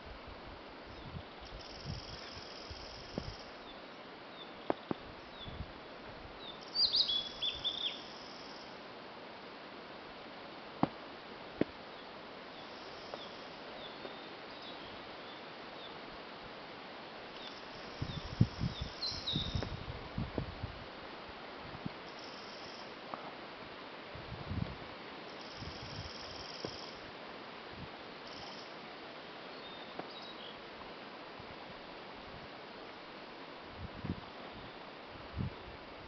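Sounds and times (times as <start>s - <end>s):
background hiss: 0.0s - 36.0s
distant birds singing: 6.4s - 8.7s, 11.8s - 16.0s, 17.3s - 19.7s, 29.4s - 30.7s.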